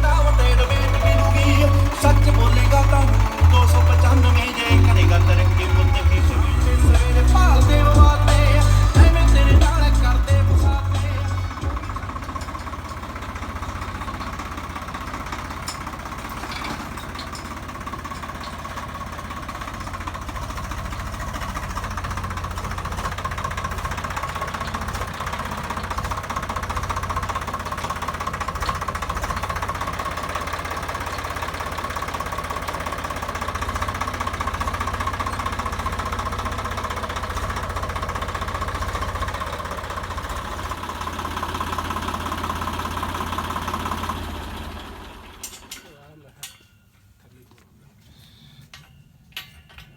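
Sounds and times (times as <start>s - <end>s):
diesel tractor engine clattering: 0.0s - 47.7s.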